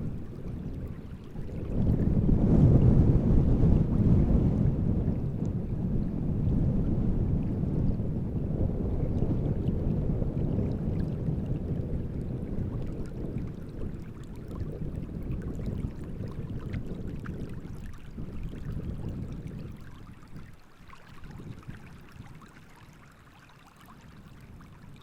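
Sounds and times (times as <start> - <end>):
wind buffeting microphones: 0.0 - 23.2, 23.8 - 25.0
small waves lapping: 10.6 - 25.0.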